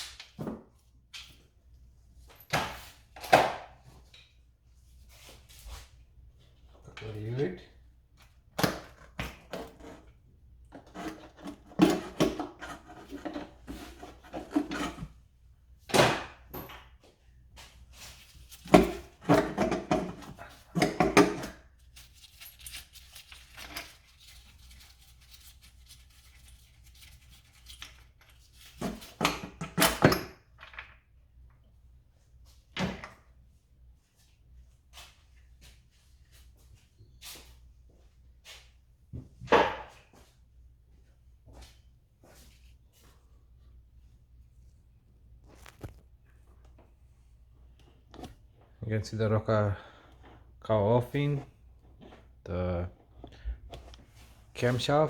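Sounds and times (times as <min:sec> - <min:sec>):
hand tools and metal parts clunking: 0:10.7 - 0:15.2, 0:18.7 - 0:21.6.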